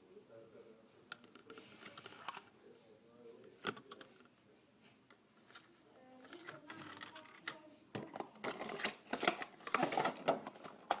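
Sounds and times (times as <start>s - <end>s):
packaging rustling and scraping: 8.1s - 11.0s.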